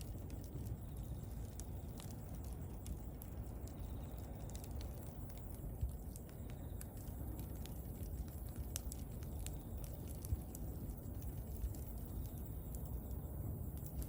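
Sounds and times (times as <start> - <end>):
bonfire crackling and popping: 0.0 - 14.0
steady low rumble: 0.0 - 14.0.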